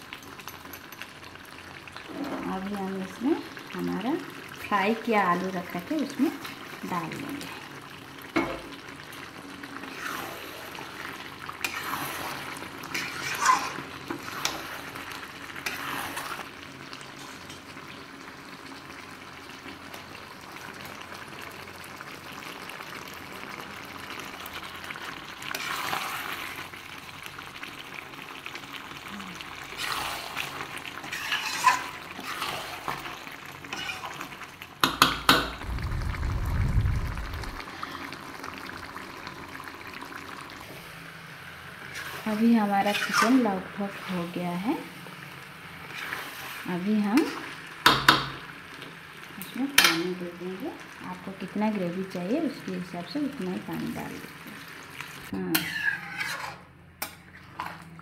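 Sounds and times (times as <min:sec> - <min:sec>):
curry sizzling in oil: 0:00.0 - 0:58.0
spoon scraping pan: 0:11.6 - 0:14.9, 0:15.6 - 0:16.4, 0:31.0 - 0:33.1, 0:33.7 - 0:35.2, 0:41.9 - 0:44.3, 0:55.5 - 0:57.8
low rumble: 0:35.6 - 0:37.7.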